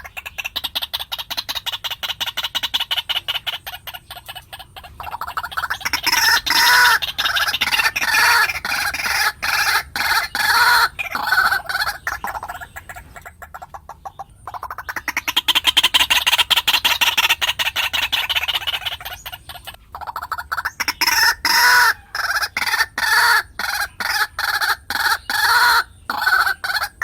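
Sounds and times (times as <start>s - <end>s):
waterhen calling: 0.0s - 27.0s.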